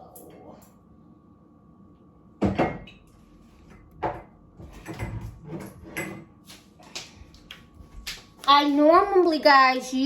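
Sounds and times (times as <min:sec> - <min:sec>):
kitchen things knocking and clattering: 0:02.4 - 0:03.1, 0:03.7 - 0:06.3.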